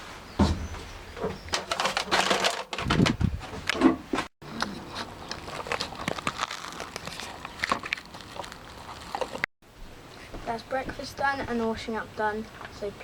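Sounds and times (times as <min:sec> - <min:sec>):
rustling and crinkling: 0:00.0 - 0:09.5.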